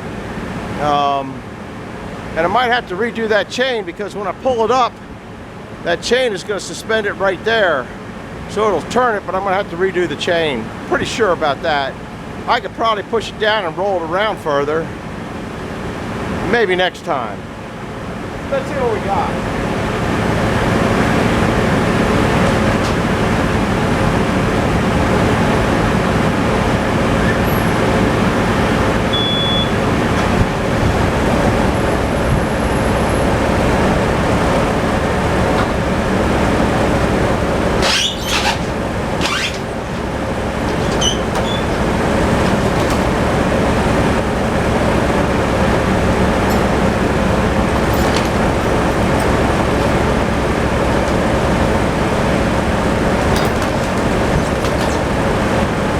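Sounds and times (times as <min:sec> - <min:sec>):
tractor engine running: 0:00.0 - 0:55.9
high scraping squeals: 0:37.8 - 0:43.0.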